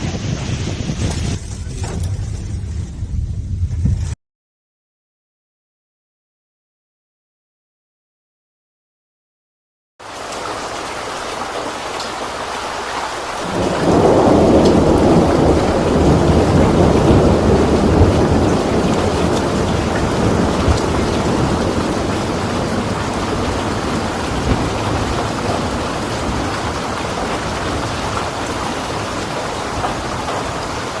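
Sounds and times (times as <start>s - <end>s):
heavy rain pouring: 0.0s - 3.6s, 10.0s - 31.0s
low rumble of thunder: 0.0s - 4.2s, 13.4s - 31.0s.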